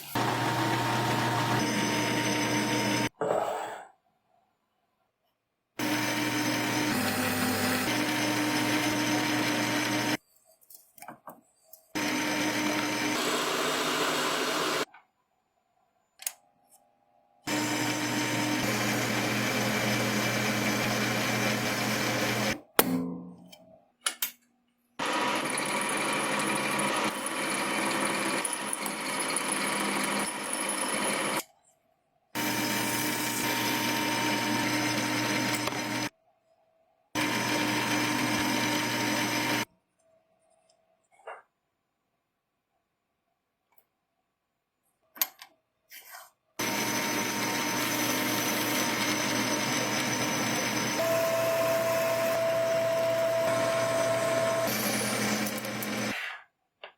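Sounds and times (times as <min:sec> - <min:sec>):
small electric power tool running: 0:00.1 - 0:03.1, 0:05.8 - 0:10.2, 0:12.0 - 0:14.9, 0:17.5 - 0:22.6, 0:25.0 - 0:31.4, 0:32.4 - 0:36.1, 0:37.2 - 0:39.7, 0:46.6 - 0:56.2.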